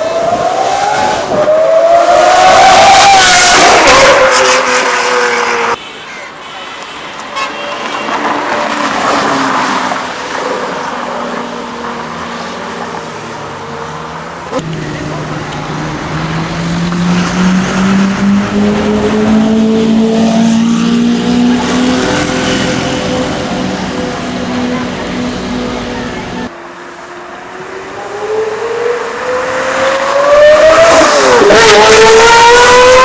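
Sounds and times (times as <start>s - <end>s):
sports car engine accelerating: 13.9s - 33.0s.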